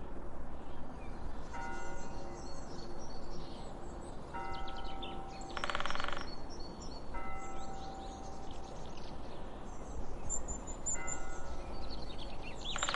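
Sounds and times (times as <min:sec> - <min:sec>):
bird chirps: 0:10.3 - 0:12.9.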